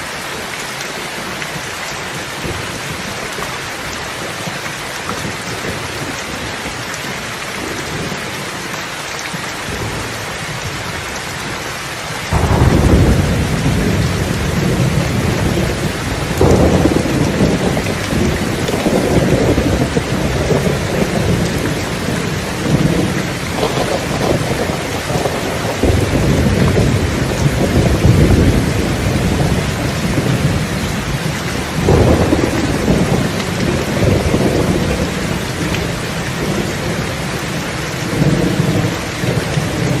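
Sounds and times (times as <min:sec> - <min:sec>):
steady rain: 0:00.0 - 0:40.0
thunder rumble: 0:12.3 - 0:40.0.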